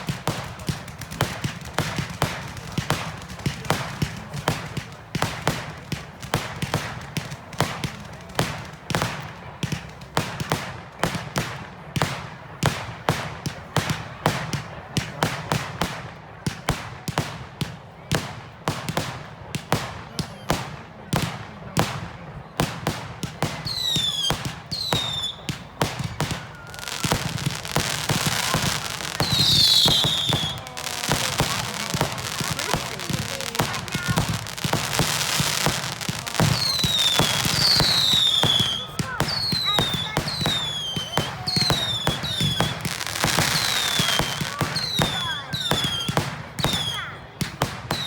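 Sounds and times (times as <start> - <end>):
dense firework crackling: 0.0 - 48.0
fireworks bangs: 0.0 - 48.0
falling firework whistles: 23.7 - 25.5, 26.2 - 32.6, 36.4 - 47.0.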